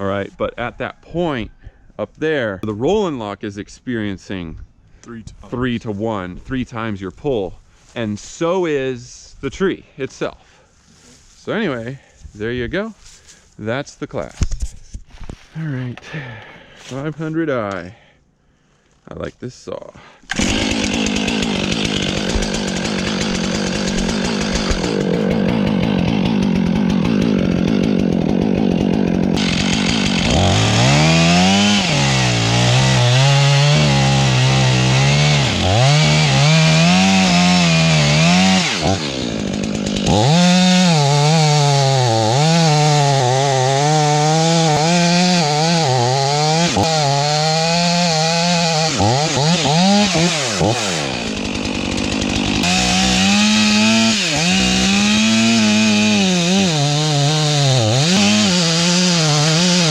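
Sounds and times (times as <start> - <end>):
chainsaw cutting wood: 20.2 - 59.9.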